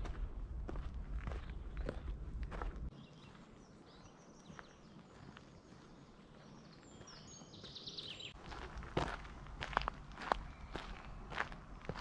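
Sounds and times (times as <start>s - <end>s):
footsteps on a path: 0.0s - 12.0s
songbirds calling: 1.3s - 8.4s, 10.1s - 12.0s.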